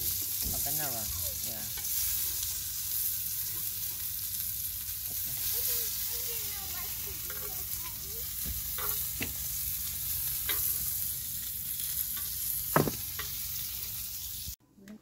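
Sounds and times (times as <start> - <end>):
hot dogs sizzling on griddle: 0.0 - 14.6
tongs clicking against griddle: 8.5 - 9.4, 10.3 - 10.9.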